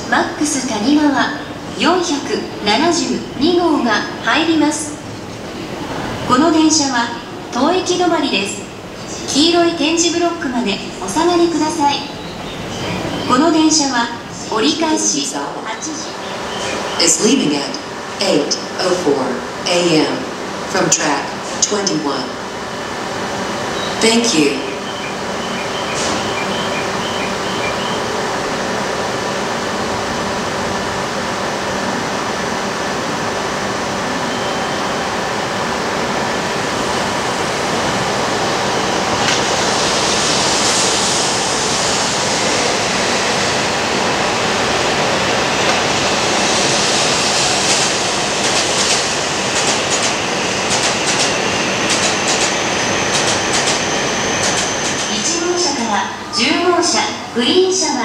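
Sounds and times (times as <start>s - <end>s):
train moving along a platform: 0.0s - 58.0s
rushing hiss: 45.0s - 53.8s.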